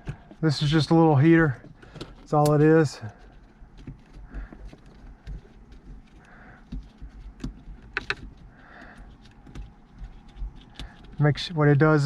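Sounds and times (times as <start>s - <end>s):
handling rustle: 0.0s - 12.0s
small plastic clicks: 6.2s - 11.2s.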